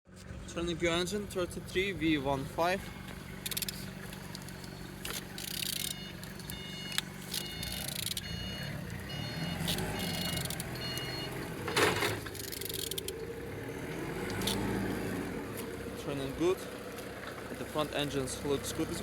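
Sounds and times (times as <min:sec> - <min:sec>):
clicks: 0:03.4 - 0:09.0, 0:09.6 - 0:13.2
short high-pitched beeps: 0:05.4 - 0:11.4.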